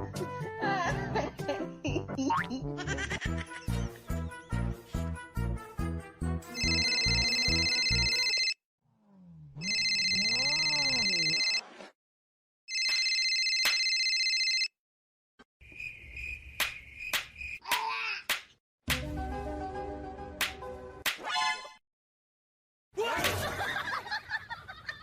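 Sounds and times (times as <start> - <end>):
electronic telephone ringing: 6.6 - 8.6, 9.6 - 11.6, 12.7 - 14.7.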